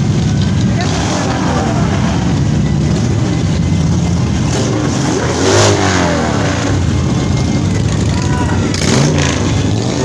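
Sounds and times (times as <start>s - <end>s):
motorcycle engines rumbling: 0.0s - 10.0s
person calling out: 8.1s - 8.8s.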